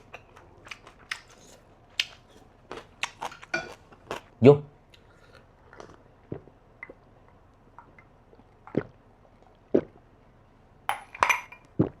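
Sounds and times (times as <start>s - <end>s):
wet chewing and mouth sounds: 0.0s - 4.3s, 4.9s - 10.0s
glass clinking: 10.9s - 11.7s.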